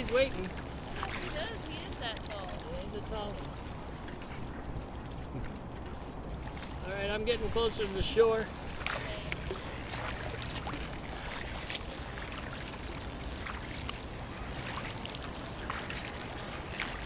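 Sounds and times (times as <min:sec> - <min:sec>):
kayak paddle splashing: 0:00.0 - 0:17.0
water noise: 0:00.0 - 0:17.0
wind on microphone: 0:00.7 - 0:12.2.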